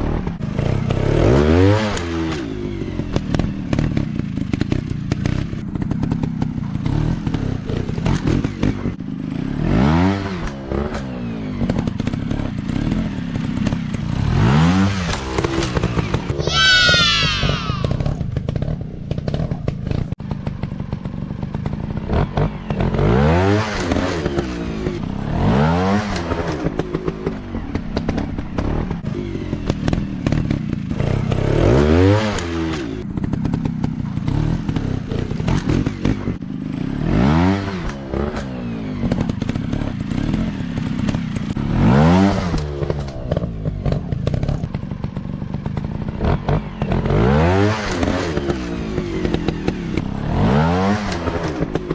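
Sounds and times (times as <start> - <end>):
dirt bike engines revving: 14.4 - 18.2.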